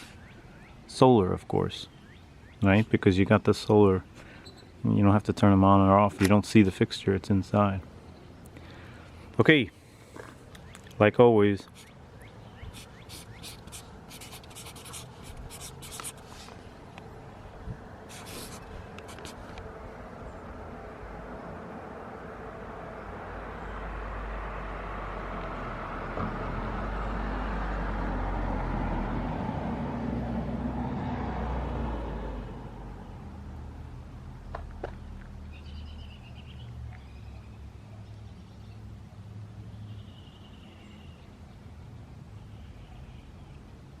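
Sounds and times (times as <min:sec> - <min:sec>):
short bird chirps: 0:04.3 - 0:04.8
vehicle passing by: 0:14.7 - 0:40.0.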